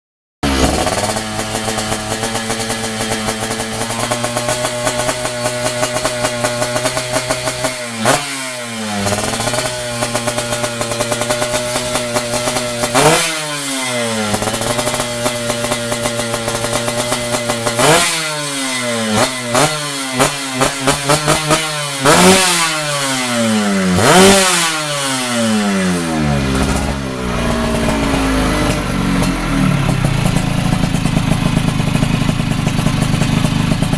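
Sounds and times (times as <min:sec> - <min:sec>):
two-stroke motorcycle engine revving: 0:00.4 - 0:33.9.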